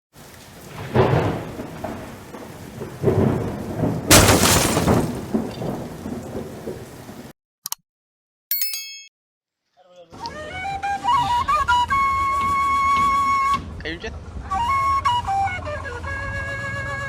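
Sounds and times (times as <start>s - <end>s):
steady rain: 0.1s - 7.3s
thunder rolling: 0.3s - 7.3s
sharp thunder crack: 0.7s - 7.3s.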